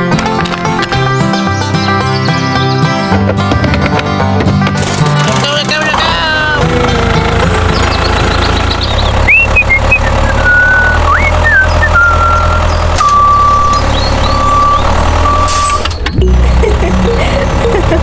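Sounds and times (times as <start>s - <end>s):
tractor engine running: 0.0s - 18.0s
high electronic melody: 14.4s - 18.0s.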